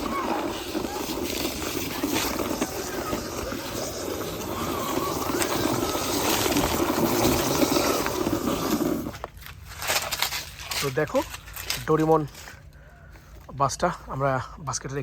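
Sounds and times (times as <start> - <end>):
toy bus wheels scraping on dirt: 0.0 - 12.7.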